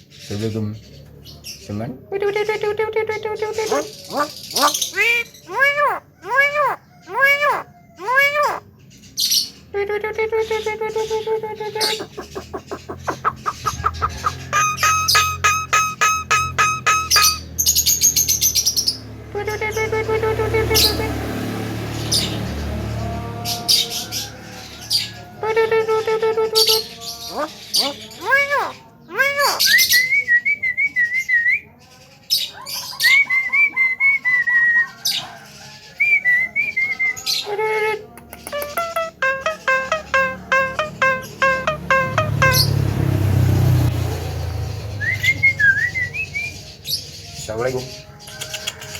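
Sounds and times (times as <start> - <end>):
myna calling: 3.1 - 8.7, 10.0 - 17.6, 24.8 - 29.8, 37.4 - 43.9
bird harsh chattering: 3.5 - 8.6, 10.5 - 18.5, 26.6 - 29.8, 38.4 - 42.8
bird warbling whistles: 11.8 - 17.4.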